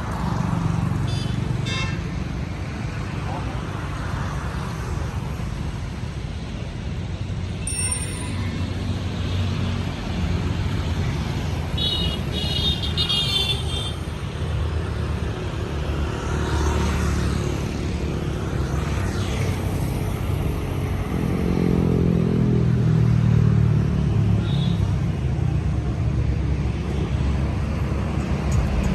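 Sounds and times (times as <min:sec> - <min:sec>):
high-pitched tone: 0:07.6 - 0:08.8.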